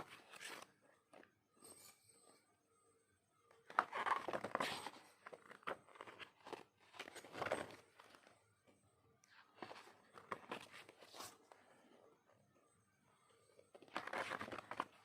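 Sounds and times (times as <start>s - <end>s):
paper and packaging rustling: 3.6s - 8.3s, 13.7s - 15.0s.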